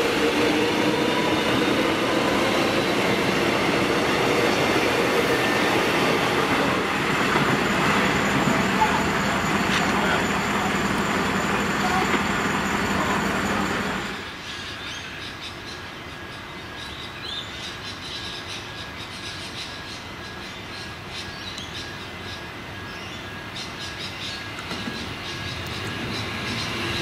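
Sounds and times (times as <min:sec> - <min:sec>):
electric train running: 0:00.0 - 0:14.4, 0:21.9 - 0:27.0
birds chirping: 0:12.5 - 0:27.0.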